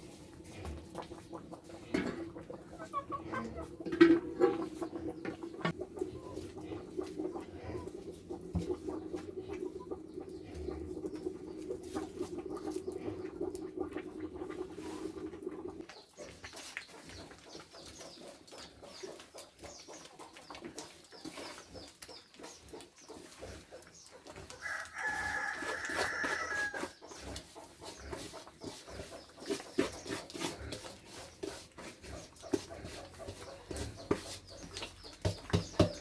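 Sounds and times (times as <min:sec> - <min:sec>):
rooster crowing: 0:24.6 - 0:26.8.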